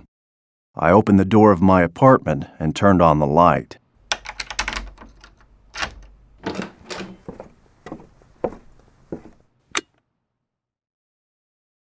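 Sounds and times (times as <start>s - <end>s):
door knocks and clicks: 4.0s - 9.5s
sharp door click: 4.0s - 9.9s.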